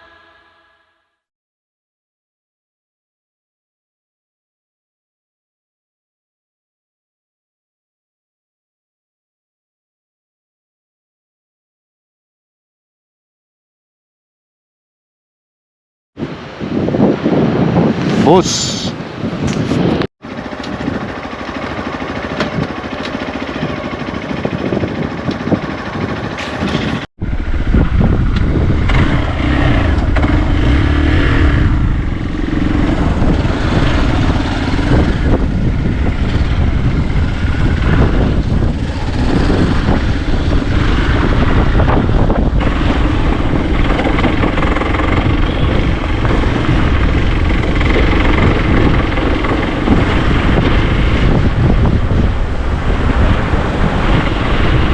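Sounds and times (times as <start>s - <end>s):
wind on microphone: 16.2s - 20.1s, 20.7s - 54.9s
motorcycle engine running: 20.2s - 54.9s.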